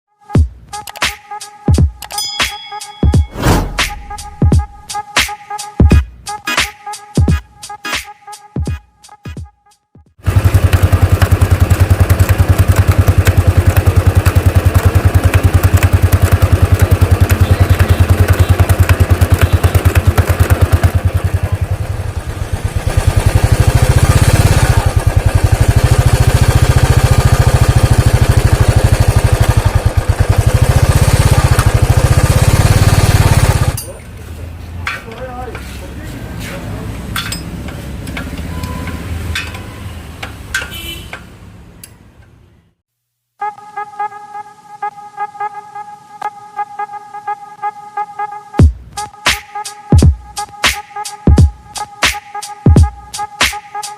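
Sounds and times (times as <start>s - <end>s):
motorcycle engine thumping: 10.3s - 33.8s.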